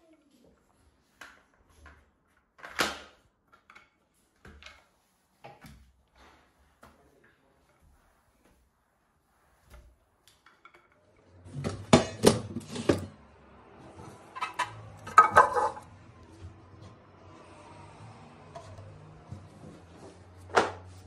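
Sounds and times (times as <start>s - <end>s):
dishes clattering: 14.4s - 15.9s.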